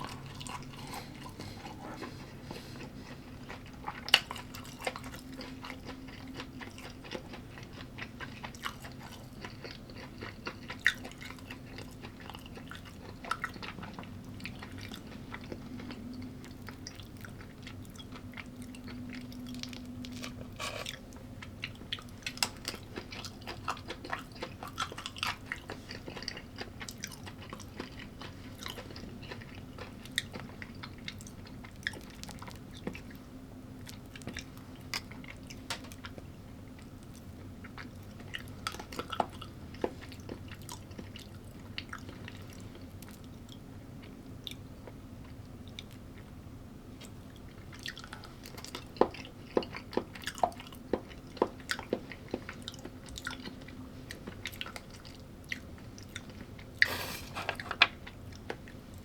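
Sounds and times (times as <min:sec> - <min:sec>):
person chewing food: 0:00.0 - 0:33.2, 0:33.8 - 0:46.3, 0:47.0 - 0:59.0
low steady hum: 0:00.0 - 0:59.0.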